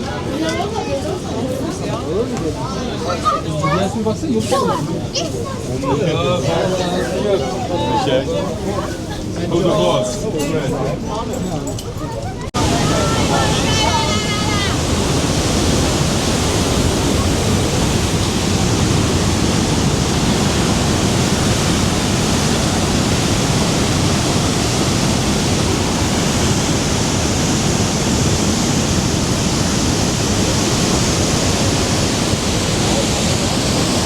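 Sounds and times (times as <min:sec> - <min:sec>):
waterfall rushing: 0:12.6 - 0:34.0.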